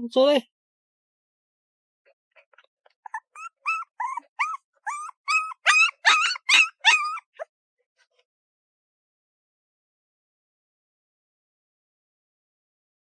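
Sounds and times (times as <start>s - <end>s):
puppy yipping and whining: 3.0s - 7.5s.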